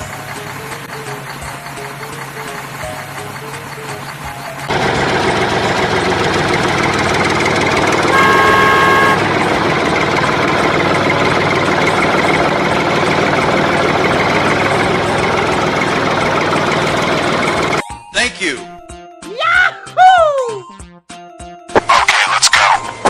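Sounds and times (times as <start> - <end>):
truck engine running: 0.0 - 17.8
truck horn honking: 4.7 - 12.4.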